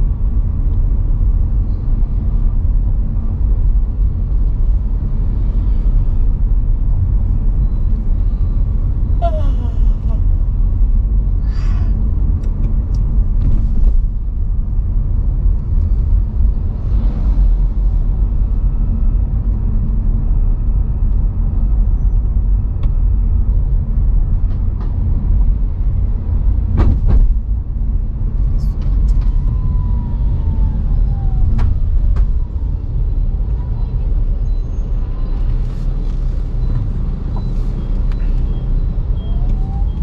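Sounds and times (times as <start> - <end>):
road and tyre rumble in car cabin: 0.0 - 40.0.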